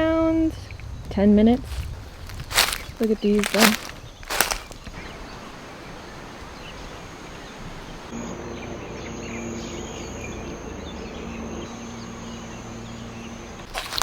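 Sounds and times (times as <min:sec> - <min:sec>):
high insect drone: 0:08.1 - 0:14.0.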